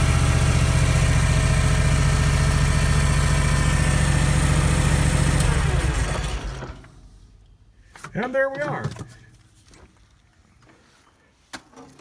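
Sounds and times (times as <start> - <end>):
engine idling and running down: 0.0 - 7.1.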